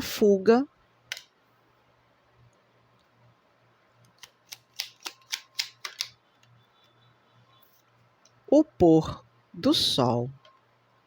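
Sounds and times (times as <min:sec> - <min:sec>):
cards clicking and snapping: 0:04.1 - 0:06.2.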